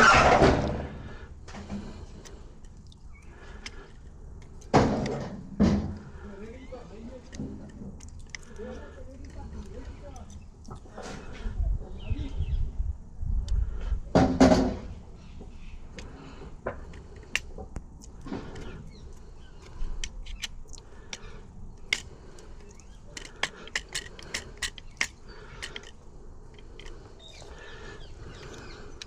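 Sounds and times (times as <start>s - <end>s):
small metal parts clicking: 2.2s - 5.2s, 6.4s - 10.8s, 16.8s - 29.0s.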